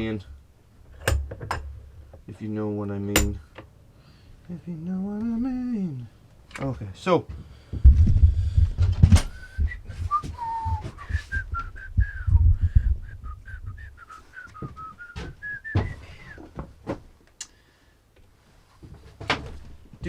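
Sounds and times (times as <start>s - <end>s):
knocks and clatter of handling: 0.9s - 2.3s, 14.6s - 17.1s, 18.8s - 20.0s
person whistling a tune: 9.3s - 16.5s.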